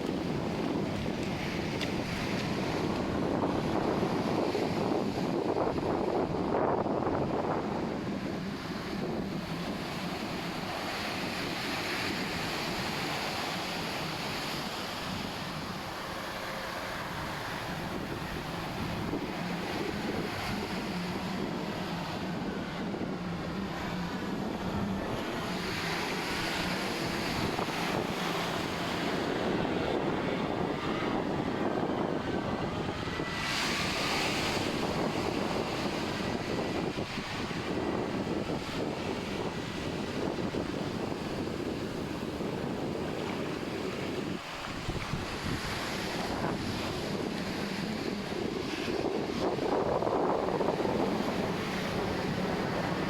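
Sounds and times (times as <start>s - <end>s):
ocean surf washing ashore: 0.0s - 53.0s
wind on microphone: 0.0s - 53.0s
engine drone: 6.0s - 53.0s.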